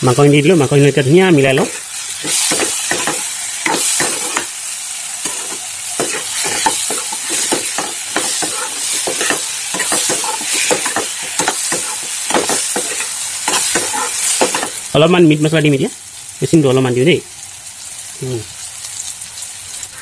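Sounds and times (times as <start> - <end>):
food sizzling: 0.0 - 20.0
metal ladle scraping a wok: 5.2 - 14.7.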